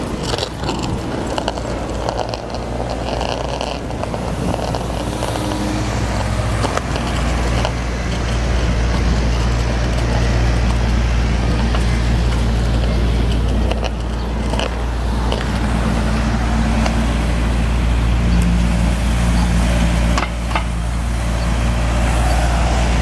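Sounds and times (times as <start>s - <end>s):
sharp clicks: 0.0s - 17.6s
skateboard wheels rolling on pavement: 0.0s - 23.0s
street traffic: 0.0s - 23.0s.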